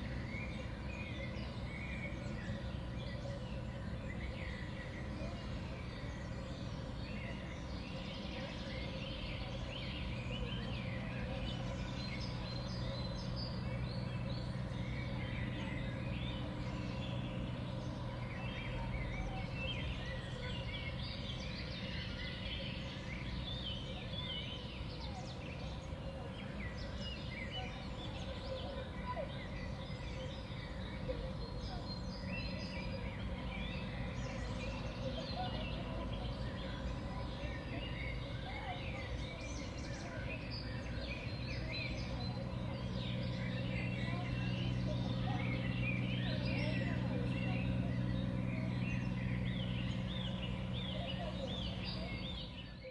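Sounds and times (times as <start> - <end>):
small songbirds chirping: 0.0 - 52.9
steady low hum: 41.2 - 52.8.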